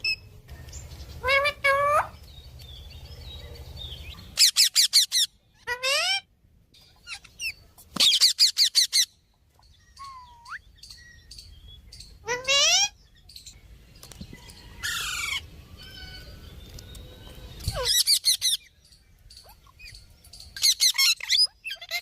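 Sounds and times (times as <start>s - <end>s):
parrot calling: 1.2s - 2.2s, 4.2s - 6.3s, 7.0s - 9.2s, 12.1s - 13.0s, 20.6s - 22.0s.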